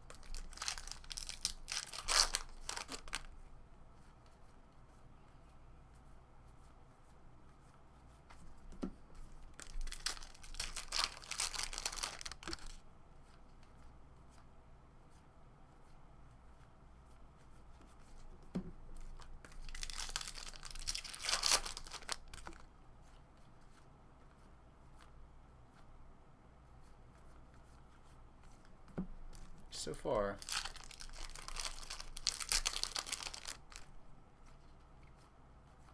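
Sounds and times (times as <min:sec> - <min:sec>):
wrappers tearing and crinkling: 0:00.0 - 0:03.3, 0:09.6 - 0:12.8, 0:19.6 - 0:22.6, 0:30.4 - 0:33.9.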